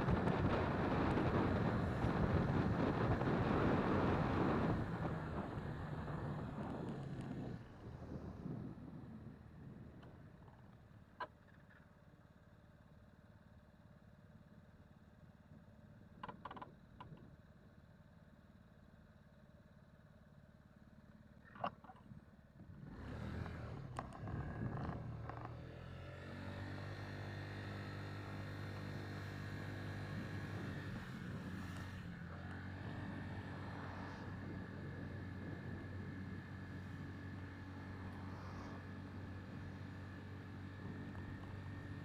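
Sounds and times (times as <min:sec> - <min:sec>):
jet airliner engines approaching: 0:29.9 - 0:42.0.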